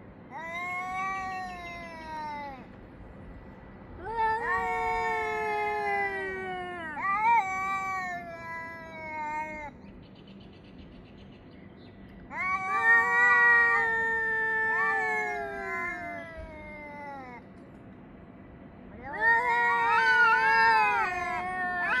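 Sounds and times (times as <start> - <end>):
cats yowling: 0.3 - 2.7, 4.0 - 9.8, 12.3 - 17.4, 18.9 - 22.0.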